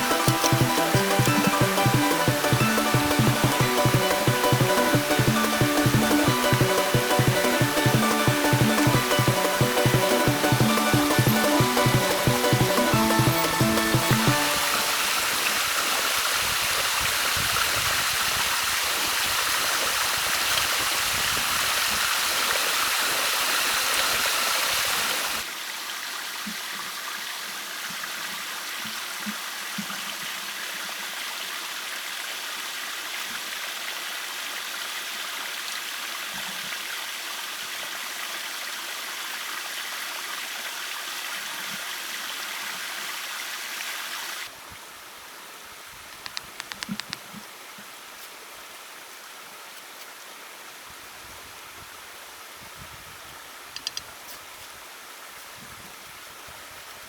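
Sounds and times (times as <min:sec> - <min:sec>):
stream water rushing: 0:00.0 - 0:25.9.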